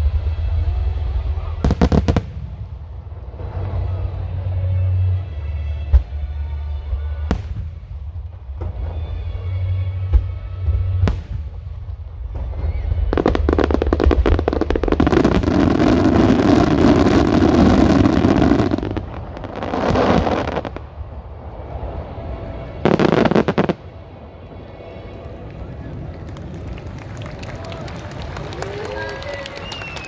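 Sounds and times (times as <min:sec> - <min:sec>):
fireworks booming: 0:00.0 - 0:05.0, 0:07.0 - 0:24.1
fireworks crackling: 0:00.0 - 0:30.0
sharp crack: 0:11.0 - 0:12.0, 0:12.6 - 0:21.1.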